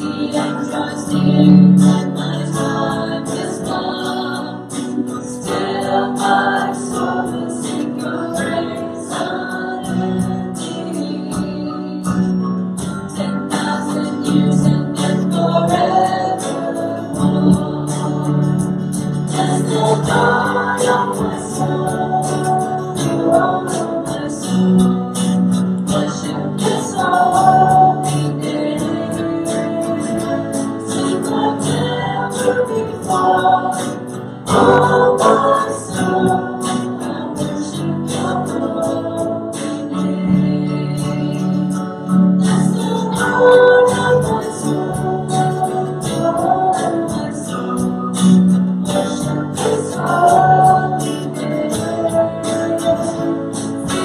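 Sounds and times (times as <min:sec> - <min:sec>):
group singing a hymn: 0:00.0 - 0:54.0
instrumental accompaniment with beat: 0:00.0 - 0:54.0.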